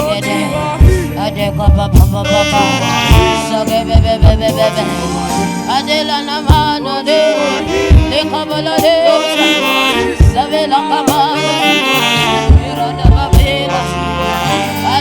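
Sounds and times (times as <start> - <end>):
gospel band playing: 0.0 - 15.0
person singing: 0.0 - 15.0
saxophone melody: 0.0 - 15.0
heavy kick drum hits: 0.8 - 1.1, 1.7 - 2.2, 3.1 - 4.6, 7.8 - 8.2, 10.2 - 10.5, 12.5 - 13.6.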